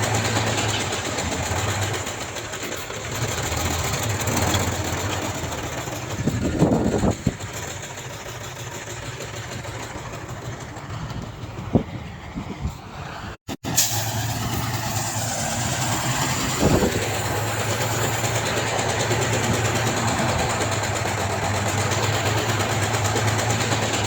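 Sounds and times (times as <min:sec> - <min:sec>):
heavy diesel machinery engine: 0:00.0 - 0:24.0.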